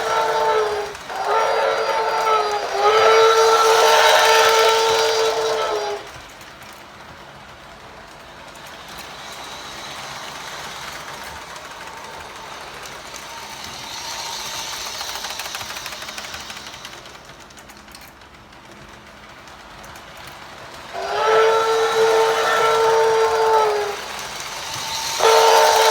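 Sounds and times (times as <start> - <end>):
model train whistle: 0.0 - 6.3, 8.9 - 17.3, 20.8 - 25.9
train running on track: 0.0 - 25.9.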